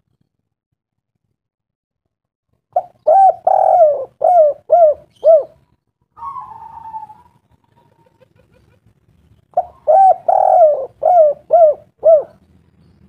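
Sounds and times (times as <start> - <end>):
bird calling: 2.8 - 5.6, 6.2 - 8.7, 9.5 - 12.5.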